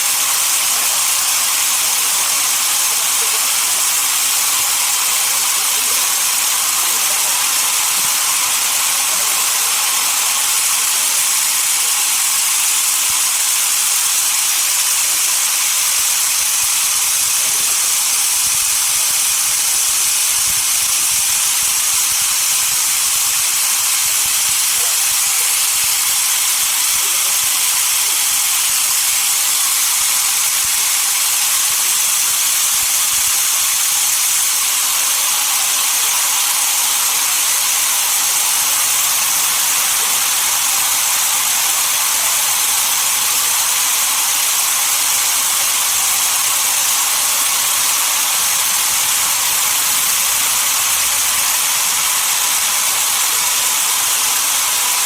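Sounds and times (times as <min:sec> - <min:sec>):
saw cutting through log: 0:00.0 - 0:55.0.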